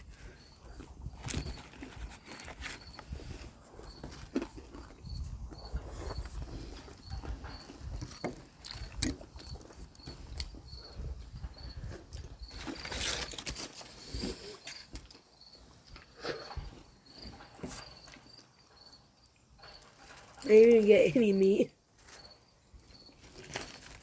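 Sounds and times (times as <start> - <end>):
person chewing: 0.0 - 13.2
wind rumbling on microphone: 0.0 - 13.3.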